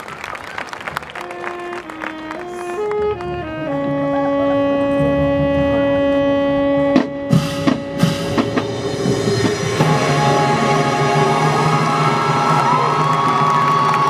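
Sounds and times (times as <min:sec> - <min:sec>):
crowd cheering: 0:00.0 - 0:02.8, 0:09.8 - 0:14.0
marching band brass chord: 0:01.0 - 0:14.0
drum hits: 0:07.0 - 0:14.0.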